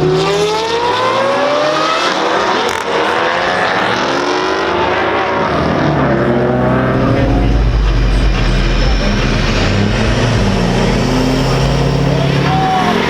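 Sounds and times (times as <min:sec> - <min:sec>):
car engines revving: 0:00.0 - 0:13.0
deep rumble: 0:05.7 - 0:13.0.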